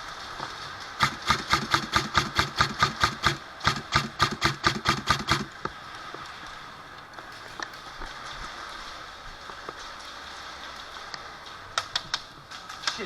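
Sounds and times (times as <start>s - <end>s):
airsoft gun firing rapid shots: 1.0s - 5.6s.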